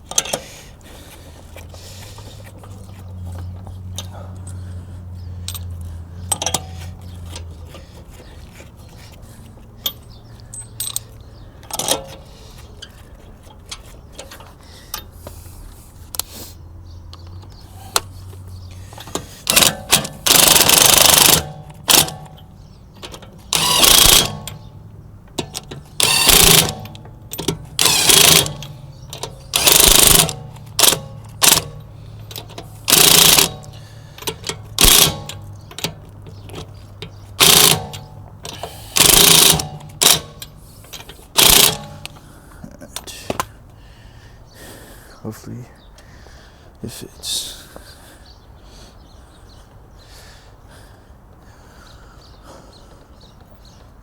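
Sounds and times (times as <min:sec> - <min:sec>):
impact wrench bursts: 0:18.8 - 0:42.3.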